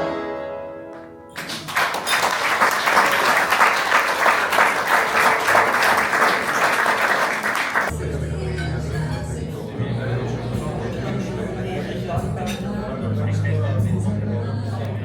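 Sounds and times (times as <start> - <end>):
audience applauding: 1.3 - 7.9.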